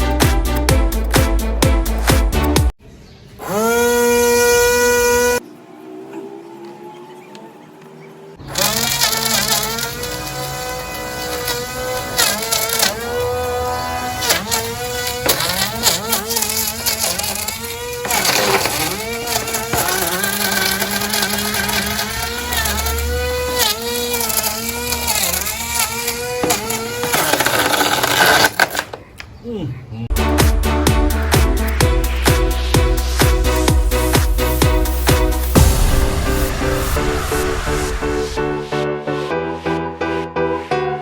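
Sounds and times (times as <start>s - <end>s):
rc boat electric motor whining: 3.4s - 29.0s, 31.1s - 35.9s.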